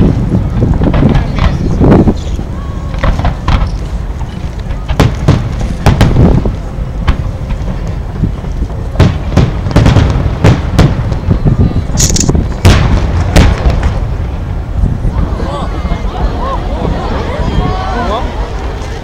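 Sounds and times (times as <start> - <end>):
low rumble: 0.0 - 19.0
firework shells booming: 4.8 - 7.9, 8.9 - 14.5.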